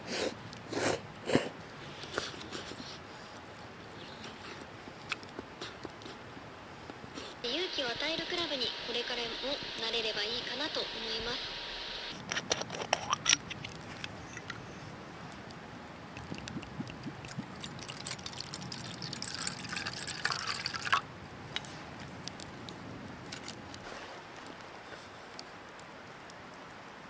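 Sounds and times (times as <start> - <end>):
liquid pouring and dripping: 16.1 - 21.0.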